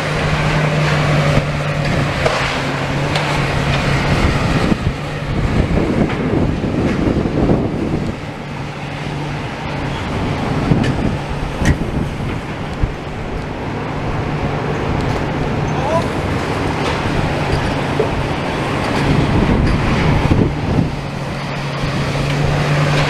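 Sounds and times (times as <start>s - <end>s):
diesel machinery engine running: 0.0s - 23.0s
wind noise on microphone: 0.0s - 23.0s.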